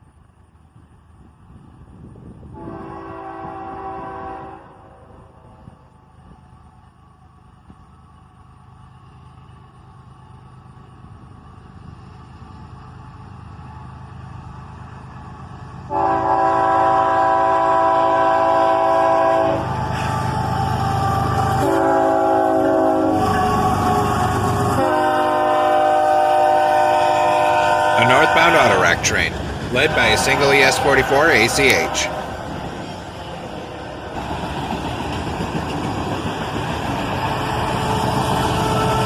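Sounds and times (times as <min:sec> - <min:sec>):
locomotive engine rumble: 0:00.0 - 0:39.0
locomotive air horn blasts: 0:02.5 - 0:05.4, 0:15.9 - 0:32.7.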